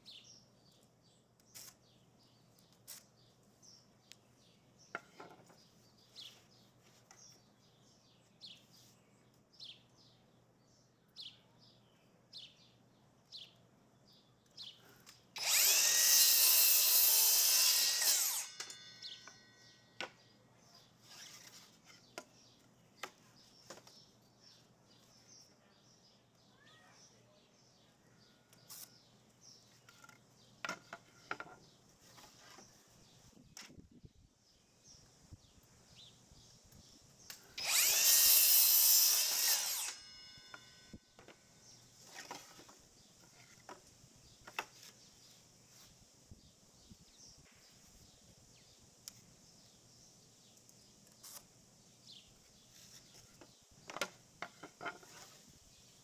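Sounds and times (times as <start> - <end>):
power drill running: 15.4 - 18.9, 37.6 - 40.7.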